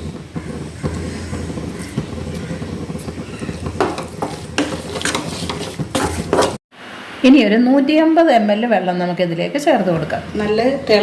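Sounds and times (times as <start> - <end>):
food sizzling in a pan: 0.0 - 6.9
spoon scraping a pan: 0.4 - 6.6.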